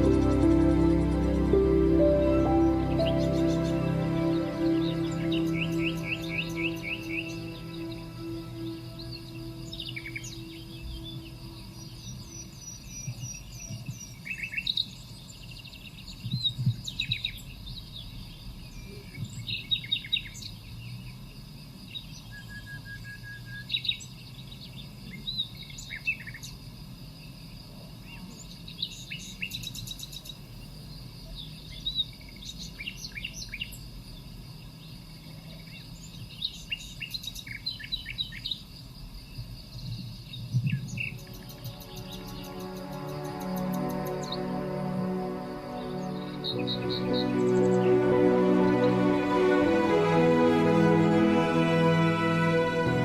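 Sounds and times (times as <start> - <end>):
birds chirping and singing: 0.0 - 13.8.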